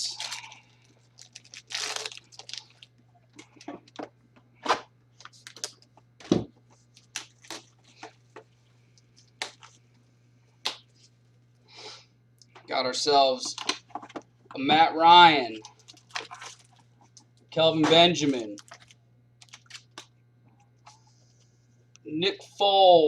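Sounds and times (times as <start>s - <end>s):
card pack wrapper tearing: 0.0s - 2.9s, 18.4s - 20.1s
steady low hum: 0.0s - 23.0s.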